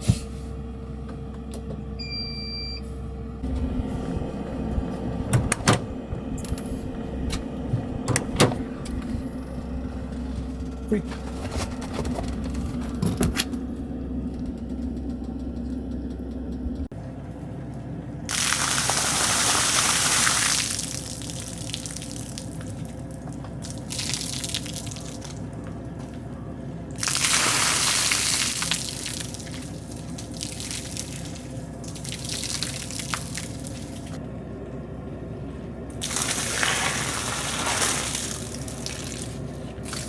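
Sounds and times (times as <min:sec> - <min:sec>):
low steady hum: 0:00.0 - 0:40.0
water pouring: 0:18.3 - 0:23.0, 0:23.6 - 0:25.5, 0:26.9 - 0:34.2, 0:36.0 - 0:40.0.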